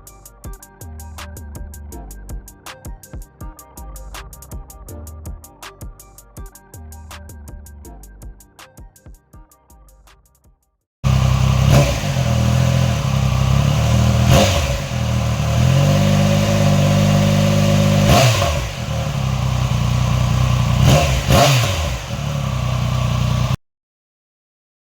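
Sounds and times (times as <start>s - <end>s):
motorcycle engine revving: 11.0s - 23.6s.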